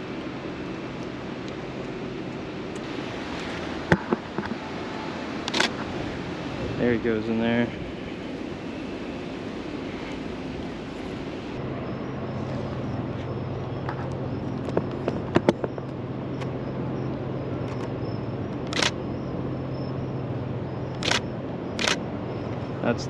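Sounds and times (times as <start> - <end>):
steady low hum: 0.0 - 23.0
camera shutter clicks: 5.5 - 5.8, 18.7 - 19.0, 21.0 - 21.2, 21.8 - 22.0.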